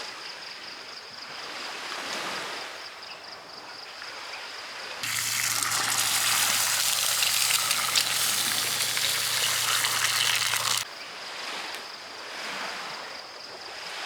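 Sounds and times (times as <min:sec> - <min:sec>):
food sizzling in a pan: 0:05.0 - 0:10.9.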